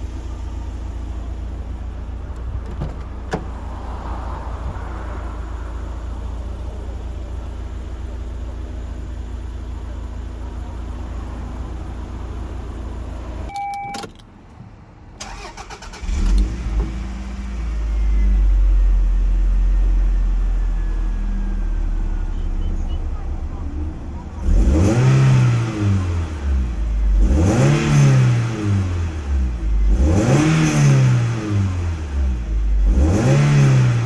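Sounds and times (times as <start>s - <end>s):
car engine idling: 0.0s - 34.0s
short electronic beep: 13.5s - 14.0s
engine cranking: 15.2s - 16.9s.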